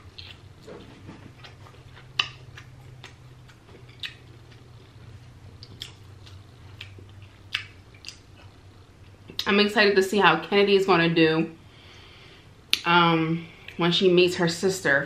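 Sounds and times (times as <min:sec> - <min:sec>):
close chewing with mouth smacks: 0:00.0 - 0:08.6
faint low hum: 0:00.0 - 0:15.0.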